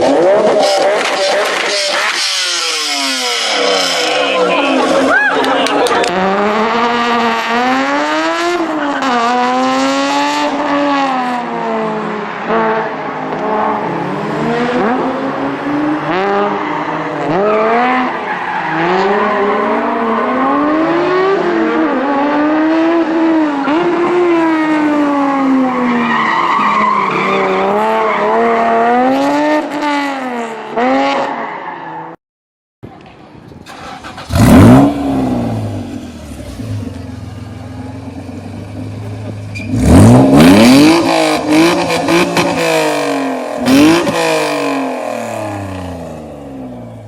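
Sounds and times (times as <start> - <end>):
car engine revving hard: 6.0 - 26.0, 33.7 - 36.9, 39.6 - 47.0.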